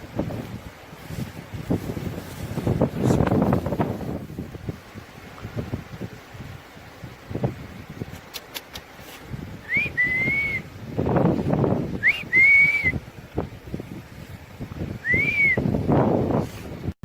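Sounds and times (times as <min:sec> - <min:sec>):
whistled sliding notes: 0:09.7 - 0:10.6, 0:12.0 - 0:13.0, 0:15.0 - 0:15.6.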